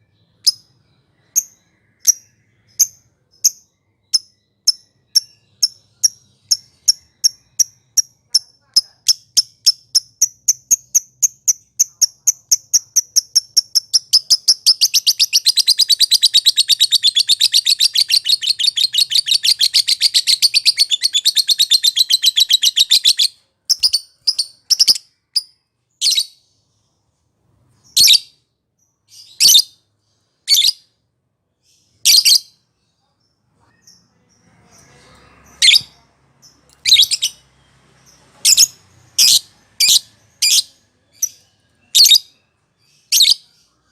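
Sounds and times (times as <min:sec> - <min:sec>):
sharp bird chirps: 0:00.0 - 0:27.0, 0:27.7 - 0:43.9
bird chattering trill: 0:04.1 - 0:25.0.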